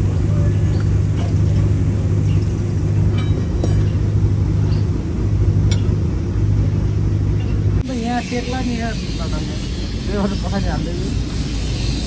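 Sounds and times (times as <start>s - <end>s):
engine idling: 0.0s - 12.0s
faint metallic clinks: 0.4s - 6.2s.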